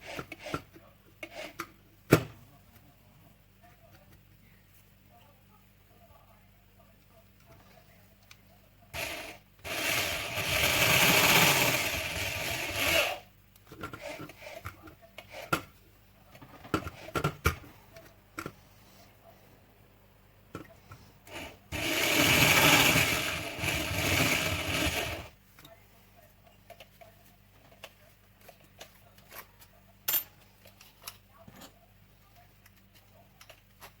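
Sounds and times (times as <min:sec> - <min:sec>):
tool rasping through plastic: 0:21.3 - 0:25.3.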